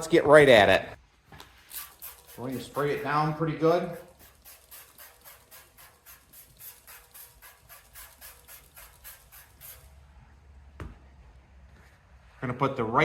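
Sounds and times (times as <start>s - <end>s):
spray bottle hissing sprays: 1.5s - 10.0s.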